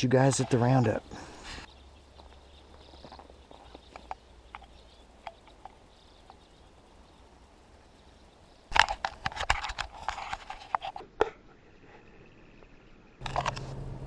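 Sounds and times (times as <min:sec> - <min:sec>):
faint clicks of gear: 0:01.6 - 0:06.6.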